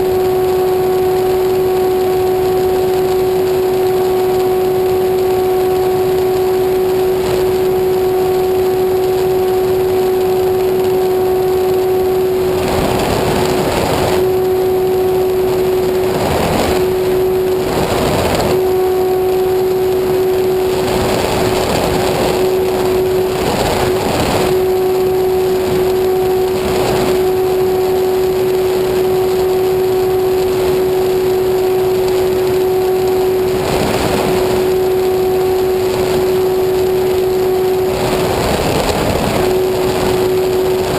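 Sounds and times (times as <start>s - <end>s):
small aircraft engine drone: 0.0s - 40.9s.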